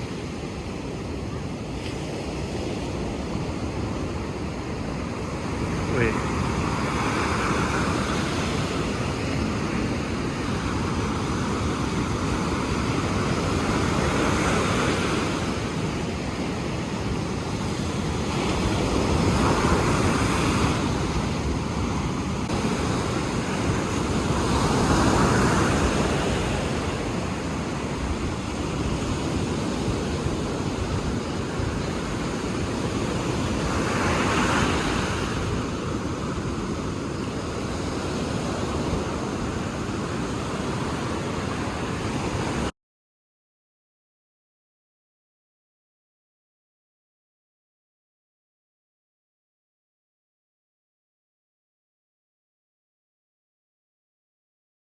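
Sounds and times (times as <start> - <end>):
ocean waves breaking: 0.0 - 42.7
wind on the microphone: 0.0 - 42.7.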